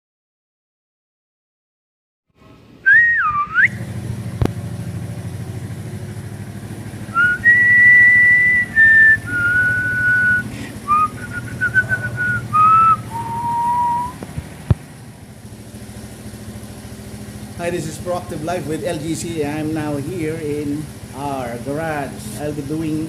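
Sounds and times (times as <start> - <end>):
person whistling a tune: 2.8 - 3.8, 7.1 - 14.2
motorcycle engine idling: 3.6 - 23.0.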